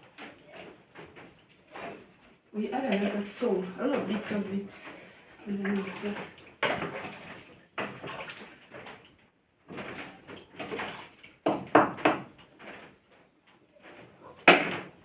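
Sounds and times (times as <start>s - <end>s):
cooking pot and utensils scraping: 0.3s - 8.8s.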